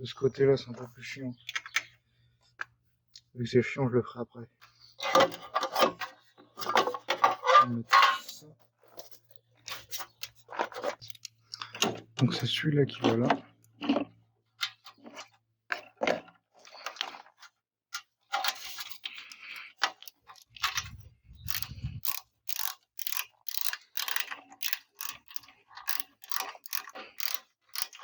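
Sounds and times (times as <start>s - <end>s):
ratchet wrench clicking: 21.4s - 28.0s.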